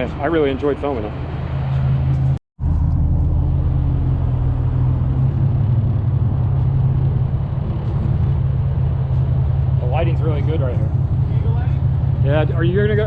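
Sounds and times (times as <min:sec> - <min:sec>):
car engine idling: 0:01.0 - 0:13.0.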